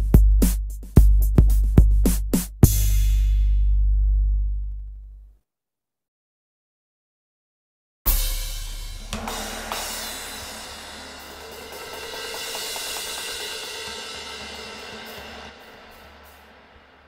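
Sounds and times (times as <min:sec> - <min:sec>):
cymbals crashing and ringing: 0:08.1 - 0:17.0.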